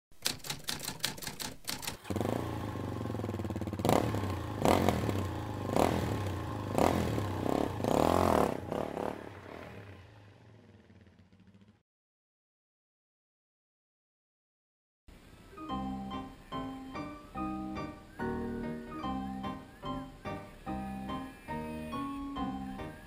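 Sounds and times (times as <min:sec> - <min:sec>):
rapid typewriter-like clicks: 0:00.1 - 0:02.1
motorcycle engine revving: 0:01.8 - 0:11.8.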